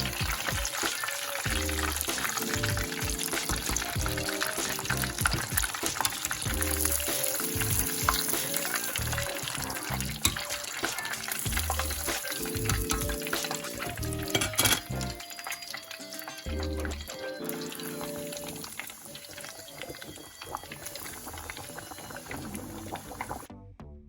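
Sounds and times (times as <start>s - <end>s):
fish deep-frying in hot oil: 0.0s - 23.5s
background music: 0.0s - 24.0s.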